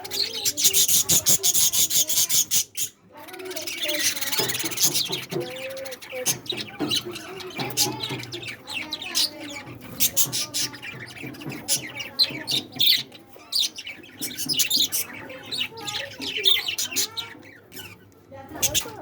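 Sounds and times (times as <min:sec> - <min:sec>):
budgerigars chirping: 0:00.0 - 0:19.0.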